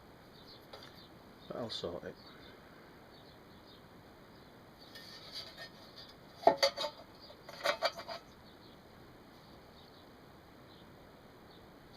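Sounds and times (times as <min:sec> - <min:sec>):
metal objects clinking: 0:05.0 - 0:08.2.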